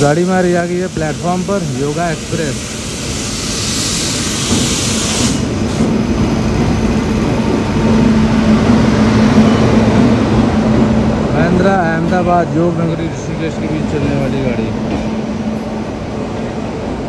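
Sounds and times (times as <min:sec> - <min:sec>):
train hum and rumble: 0:00.0 - 0:17.0
high hiss: 0:00.6 - 0:05.8.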